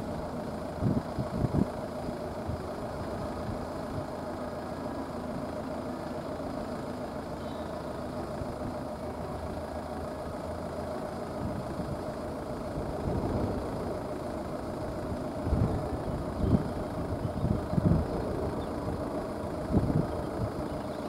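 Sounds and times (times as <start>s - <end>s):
uneven low rumbles: 0.0s - 21.0s
vehicle engine humming: 0.0s - 21.0s.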